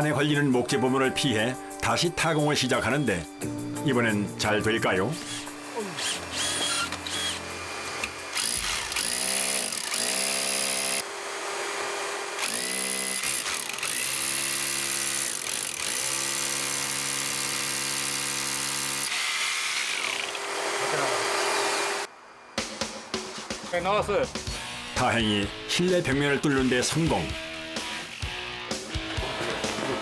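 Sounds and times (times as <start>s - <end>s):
electric drill boring into wall: 5.2s - 22.1s.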